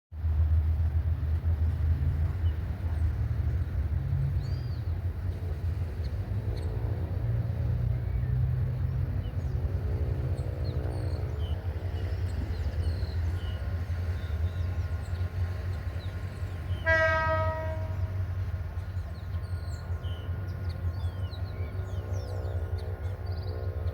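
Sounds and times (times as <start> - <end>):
locomotive rumbling: 0.1 - 23.9
locomotive horn blast: 16.7 - 18.4.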